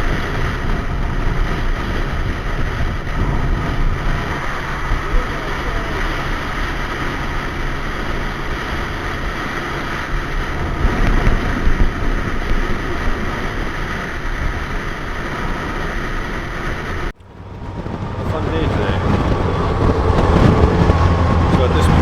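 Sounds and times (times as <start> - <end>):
wind rush on microphone: 0.0 - 22.0
motorcycle engine running: 17.0 - 22.0.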